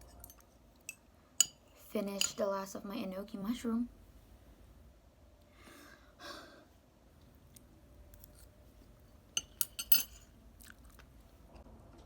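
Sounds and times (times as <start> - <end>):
utensils clinking against a bowl: 0.0 - 2.5, 9.4 - 10.4
faint breath: 5.4 - 6.8.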